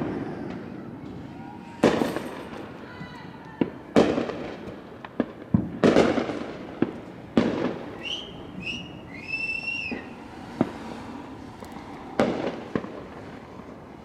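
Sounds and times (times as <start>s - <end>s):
fireworks bangs echoing: 3.6s - 9.0s, 11.6s - 13.8s.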